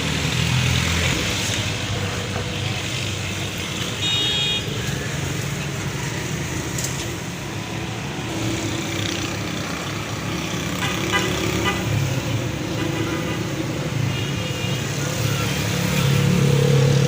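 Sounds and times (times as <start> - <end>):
traffic noise: 0.0 - 17.0
vehicle horn toot: 4.0 - 4.7.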